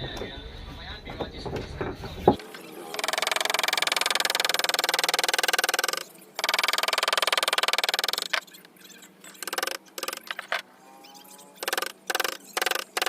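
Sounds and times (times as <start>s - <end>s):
woodcarving tool chattering on wood: 2.3s - 10.6s, 11.6s - 13.0s.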